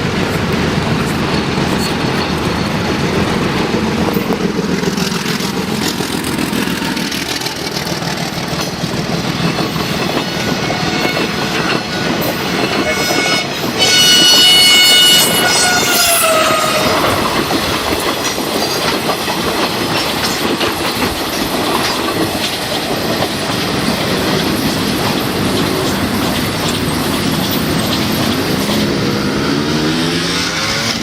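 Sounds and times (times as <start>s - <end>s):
train wheels clickety-clack: 0.0s - 31.0s
train horn: 10.4s - 17.3s.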